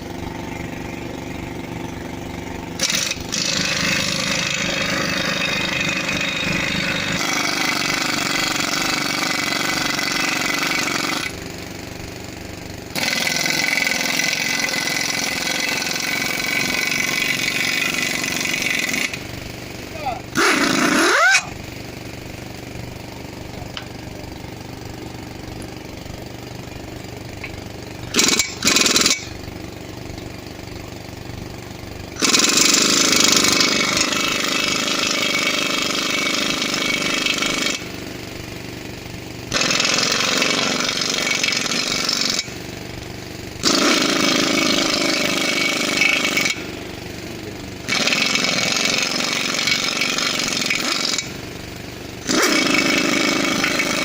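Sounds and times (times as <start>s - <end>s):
engine running steadily: 0.0s - 54.0s
impact wrench hammering: 27.4s - 29.4s, 39.5s - 42.6s, 43.6s - 46.8s, 47.8s - 51.4s, 52.2s - 54.0s.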